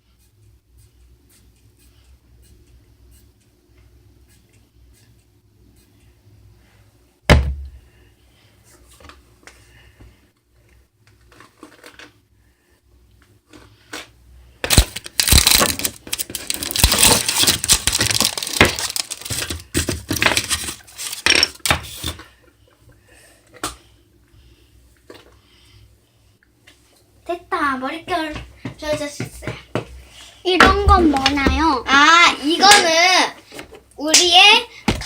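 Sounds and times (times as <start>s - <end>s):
scratchy rustling and scraping: 15.0s - 22.2s.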